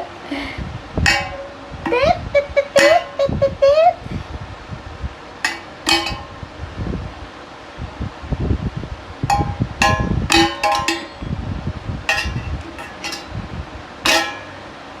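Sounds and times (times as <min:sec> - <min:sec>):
spoon clinking on a dish: 0:01.1 - 0:02.2, 0:02.8 - 0:03.3, 0:05.4 - 0:06.5, 0:09.3 - 0:11.4, 0:12.1 - 0:13.4.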